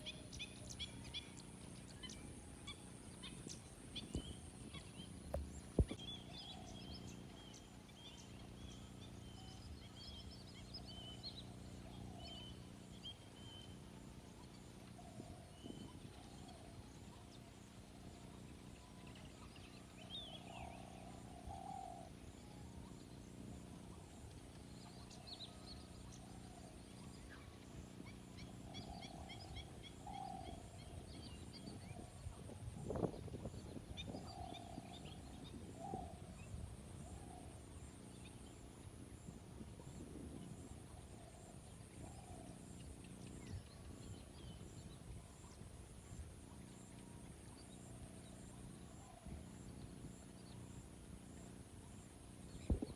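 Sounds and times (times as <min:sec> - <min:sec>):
lower repeated bird calls: 0:00.0 - 0:38.6
birds chirping and twittering: 0:00.0 - 0:52.9
steady low hum: 0:00.0 - 0:52.9.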